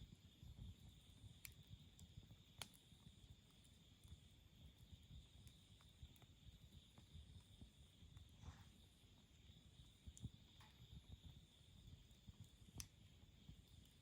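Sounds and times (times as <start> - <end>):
campfire pops: 1.4 - 2.8, 12.6 - 14.0.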